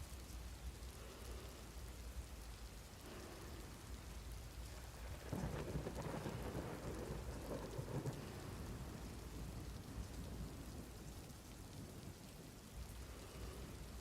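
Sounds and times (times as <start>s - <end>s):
rain falling: 0.0s - 14.0s
thunder rumbling: 4.6s - 14.0s.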